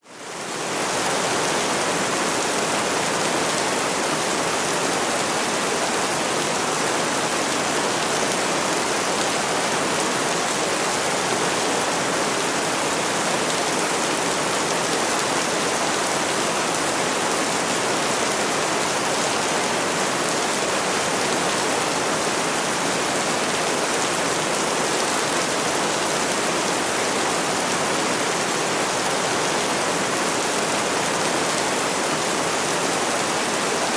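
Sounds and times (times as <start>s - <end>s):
heavy rainfall: 0.0s - 33.9s.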